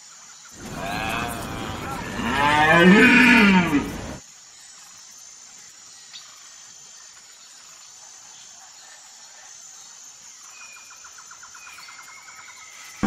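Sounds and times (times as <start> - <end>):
deer calling: 0.6 - 4.2.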